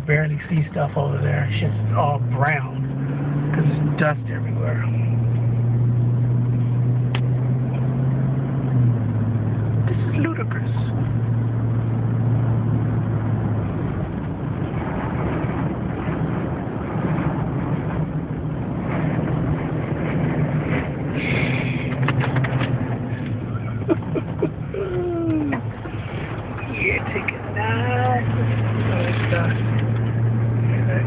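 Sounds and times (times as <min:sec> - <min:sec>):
car engine and road drone: 0:00.0 - 0:31.0
rushing wind: 0:00.0 - 0:31.0
sharp clicks and knocks: 0:21.9 - 0:23.4.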